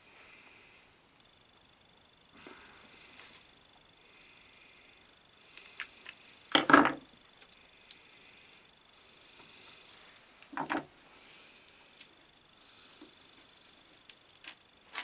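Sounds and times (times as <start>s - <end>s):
small tools handled on workbench: 10.4s - 10.9s.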